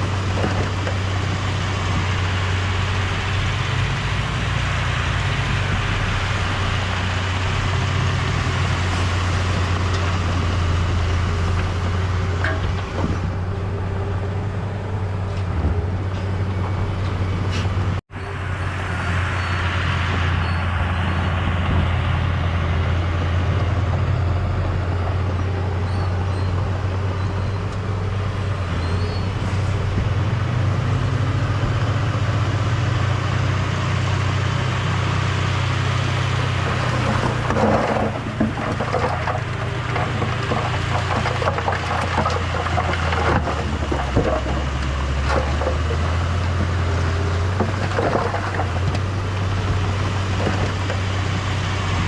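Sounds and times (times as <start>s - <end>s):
heavy diesel machinery droning: 0.0s - 52.0s
clattering: 12.4s - 13.2s, 36.8s - 46.2s, 47.6s - 49.1s.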